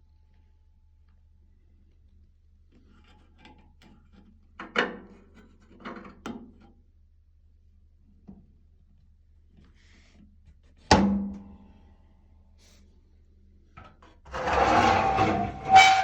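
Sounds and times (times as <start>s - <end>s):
scraping and rubbing: 14.3s - 16.0s.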